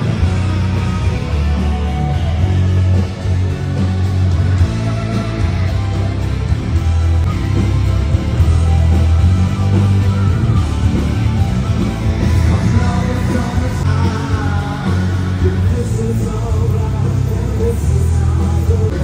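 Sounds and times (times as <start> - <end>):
drums: 0.0 - 19.0
electric guitar: 0.0 - 19.0
heavy bass line: 0.0 - 19.0.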